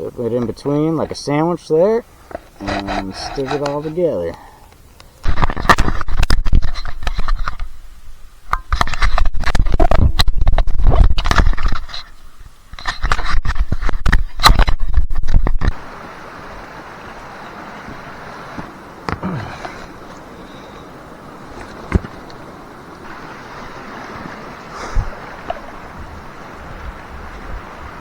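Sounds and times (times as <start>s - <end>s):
steady low hiss: 0.0s - 28.0s
close scraping and crackling: 2.2s - 4.4s, 5.0s - 7.8s, 8.4s - 15.9s, 17.9s - 26.1s.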